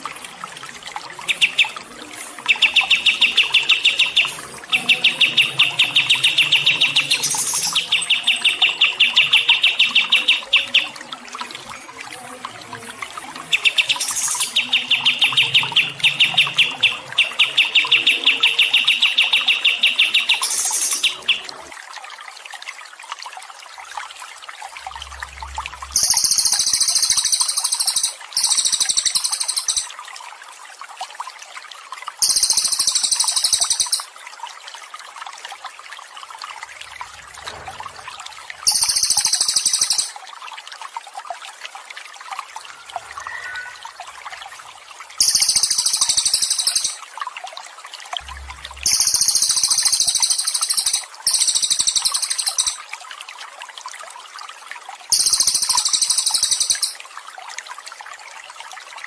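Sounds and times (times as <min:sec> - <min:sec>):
water trickling: 0:00.0 - 0:59.0
songbird singing: 0:02.5 - 0:11.1, 0:13.4 - 0:21.6, 0:25.8 - 0:29.9, 0:32.2 - 0:34.1, 0:38.7 - 0:40.2, 0:43.1 - 0:43.8, 0:45.2 - 0:47.0, 0:48.3 - 0:52.8, 0:55.2 - 0:57.0.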